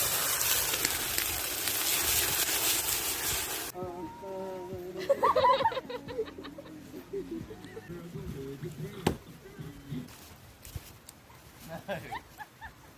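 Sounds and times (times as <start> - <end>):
burgers sizzling on a grill: 0.0 - 3.8
fire crackling: 0.0 - 5.5, 6.4 - 12.9.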